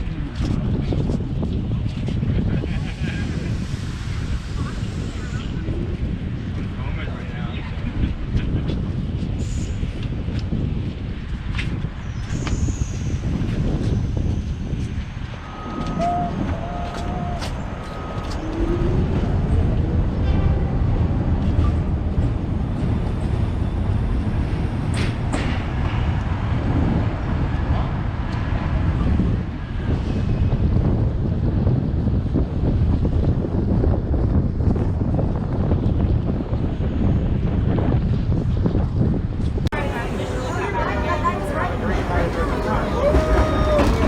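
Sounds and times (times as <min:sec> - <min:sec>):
rushing wind-like noise: 0:00.0 - 0:41.1
subway car rumbling on track: 0:00.0 - 0:44.0
wheels rattling on track: 0:39.7 - 0:44.0.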